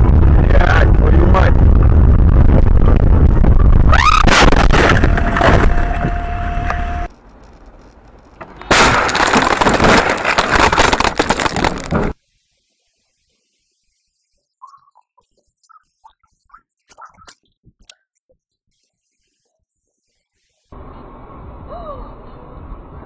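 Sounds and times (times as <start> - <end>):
crackling crunching impact noise: 0.0 - 12.2
loud rumbling road noise: 0.0 - 12.2, 20.8 - 23.0
car crash impacts: 4.0 - 6.2, 8.4 - 12.2.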